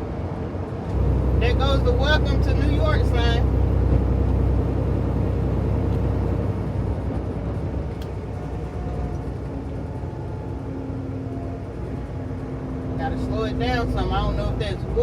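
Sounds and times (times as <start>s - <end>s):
diesel engine drone: 0.0s - 15.0s
road noise: 0.0s - 15.0s.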